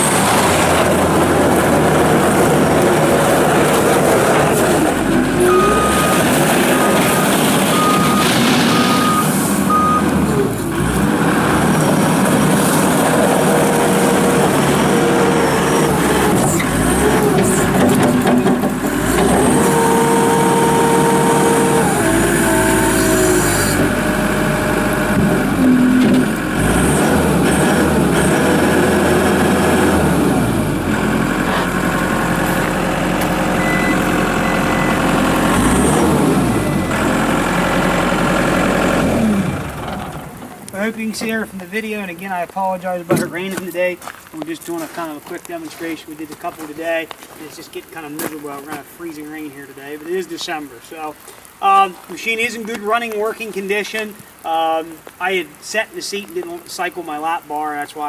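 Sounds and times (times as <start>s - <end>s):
diesel loader engine under load: 0.0s - 44.4s
backup alarm beeping: 5.4s - 10.2s, 33.4s - 37.2s.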